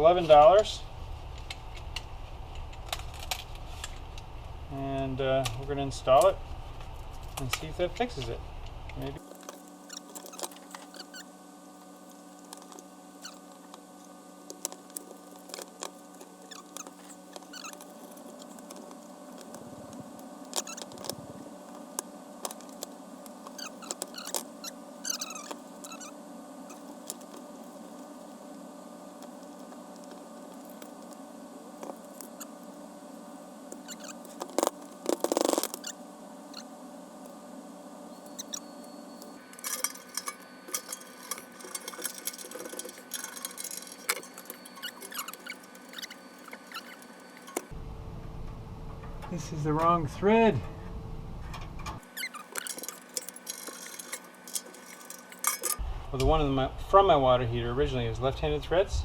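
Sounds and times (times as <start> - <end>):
steady low hum: 0.0 - 59.0
metal clatter: 39.4 - 47.7, 52.0 - 55.8
tools clicking on metal fittings: 39.6 - 47.7, 52.2 - 55.8.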